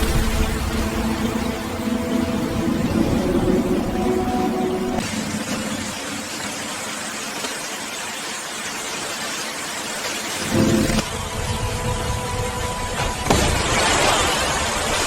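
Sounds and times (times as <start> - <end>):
steady musical tones: 0.0 - 5.0
rushing hiss of water: 0.0 - 15.0.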